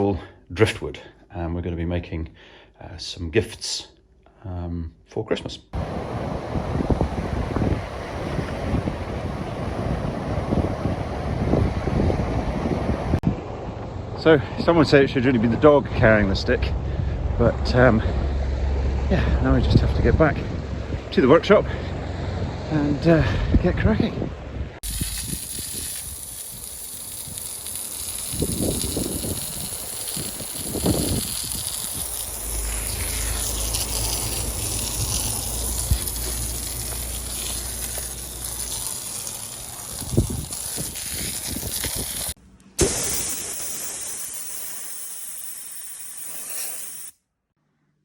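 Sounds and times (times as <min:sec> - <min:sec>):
wind buffeting microphone: 0:05.8 - 0:13.5, 0:28.2 - 0:32.5, 0:33.4 - 0:36.3, 0:39.8 - 0:42.4
surf washing on beach: 0:05.8 - 0:13.6, 0:24.8 - 0:44.7.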